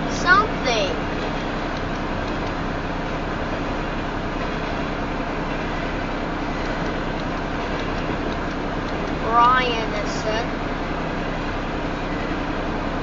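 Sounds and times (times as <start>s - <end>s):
low hum: 0.0s - 13.0s
train wheels rumbling on rail: 0.0s - 13.0s.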